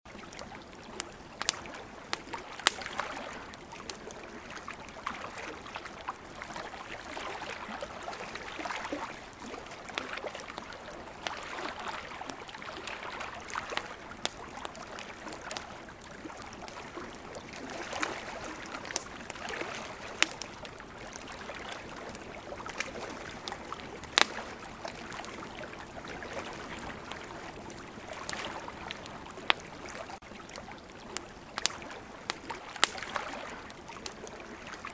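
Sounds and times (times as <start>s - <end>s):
campfire crackling: 0.1s - 34.9s
burning wood popping: 1.0s - 2.9s, 18.0s - 20.8s, 22.2s - 25.4s, 31.6s - 33.1s.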